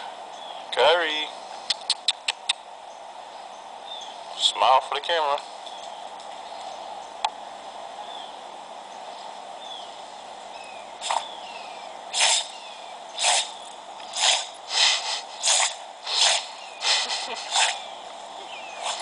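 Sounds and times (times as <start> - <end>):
dog sneezing: 12.1 - 12.5, 13.2 - 13.5, 14.1 - 17.8.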